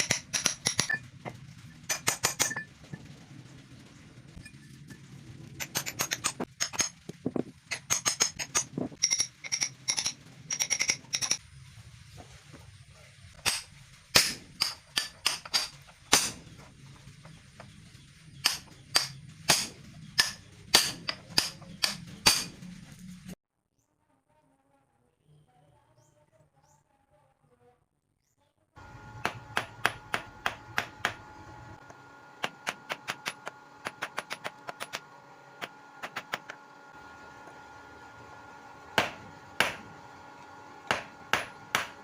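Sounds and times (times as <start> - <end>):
hammer striking steel: 18.4 - 22.6, 40.9 - 42.0.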